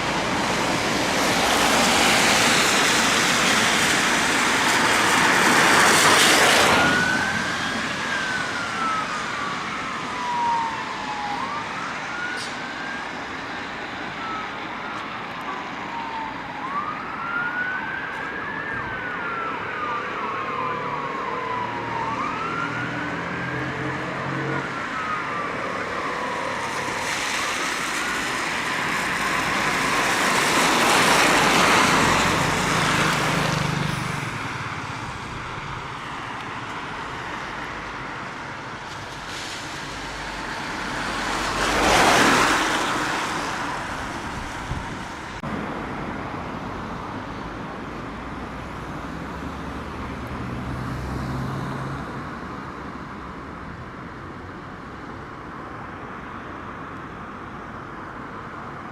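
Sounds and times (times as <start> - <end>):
siren: 0.0 - 45.5
vehicles passing: 0.0 - 58.9.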